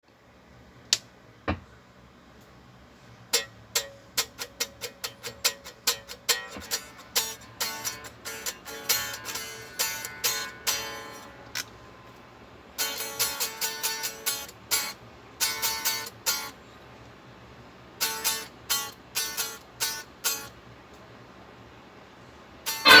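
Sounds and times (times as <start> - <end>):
faint steady hum: 0.0 - 23.0
electric guitar picked notes: 22.7 - 23.0.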